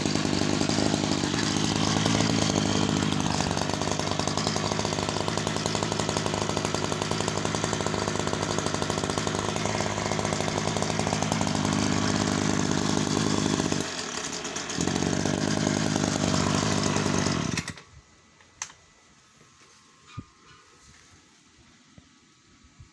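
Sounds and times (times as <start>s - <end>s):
brush cutter engine running: 0.0s - 17.9s.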